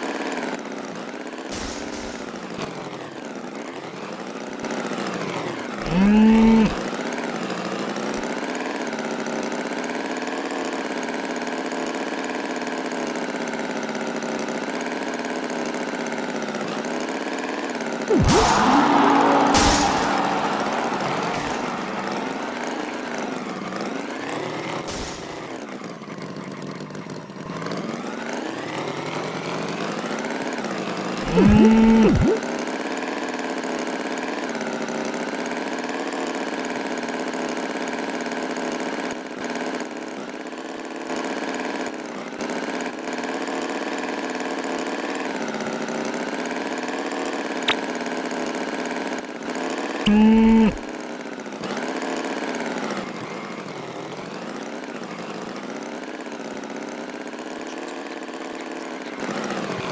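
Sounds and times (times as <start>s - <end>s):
short loud tones: 5.8s - 6.8s, 18.1s - 23.2s, 31.2s - 32.4s, 50.1s - 50.8s.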